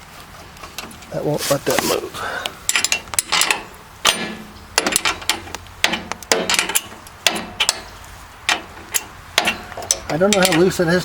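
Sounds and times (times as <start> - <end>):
hand tools clanking on metal: 0.7 - 11.0.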